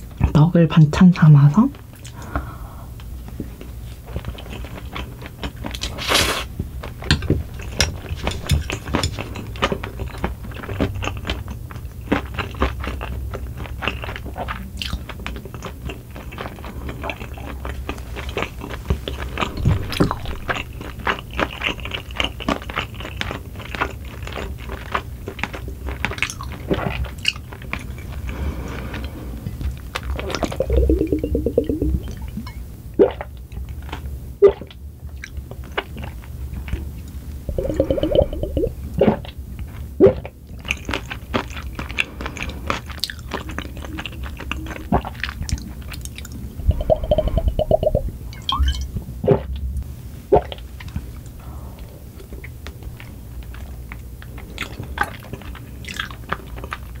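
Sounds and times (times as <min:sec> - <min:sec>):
chewing with crunches: 0:03.2 - 0:31.8, 0:33.1 - 0:47.5, 0:52.2 - 0:57.0
gulping a drink: 0:30.2 - 0:32.2, 0:37.5 - 0:39.2, 0:42.8 - 0:48.0.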